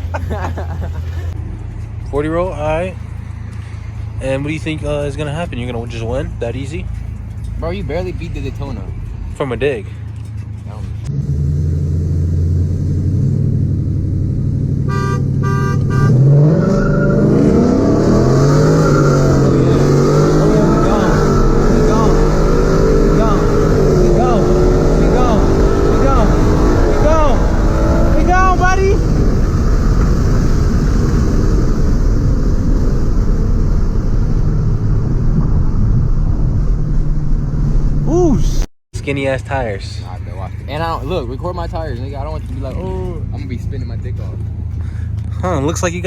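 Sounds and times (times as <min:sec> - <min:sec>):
car engine rumbling and revving: 0:00.0 - 0:46.0
car horn honks: 0:14.8 - 0:16.8.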